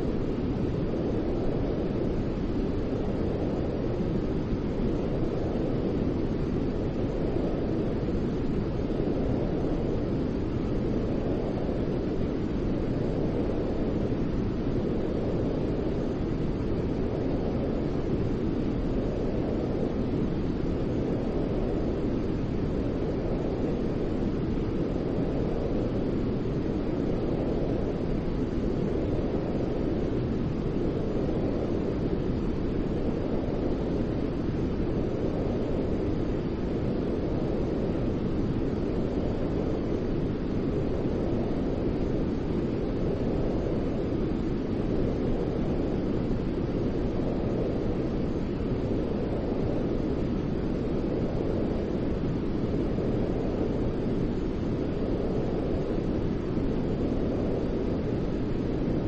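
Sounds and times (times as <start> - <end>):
deep rumbling white noise: 0.0 - 59.0.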